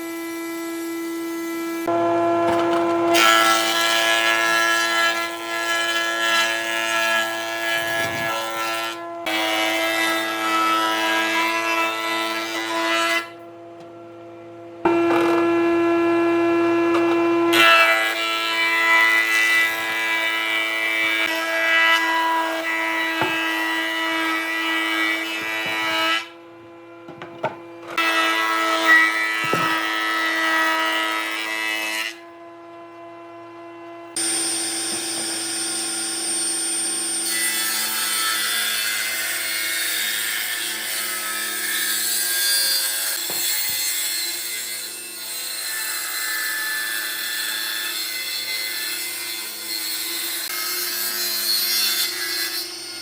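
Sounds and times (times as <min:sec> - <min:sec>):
electric power tool whining on wood: 0:00.0 - 0:11.6, 0:14.8 - 0:26.4, 0:27.1 - 0:33.5, 0:34.1 - 0:38.4.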